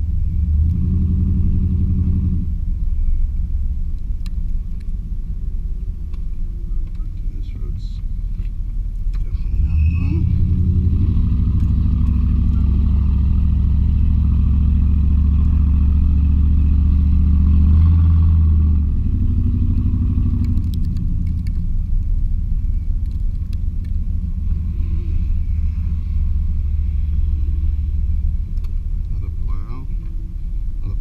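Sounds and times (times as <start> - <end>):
pickup engine exhaust drone: 0.0 - 31.0.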